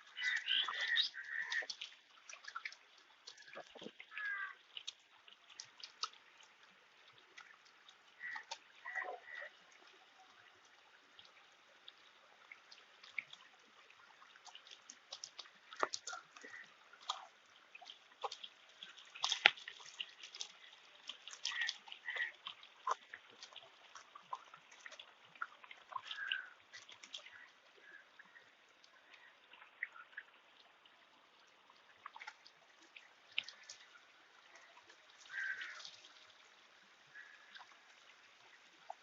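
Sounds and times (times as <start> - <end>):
fish splashing at water surface: 12.6 - 28.0, 32.0 - 39.0.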